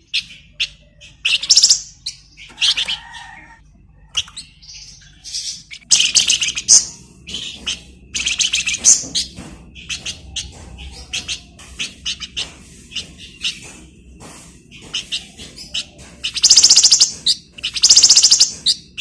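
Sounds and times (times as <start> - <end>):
songbird chirping and trilling: 0.0 - 19.0.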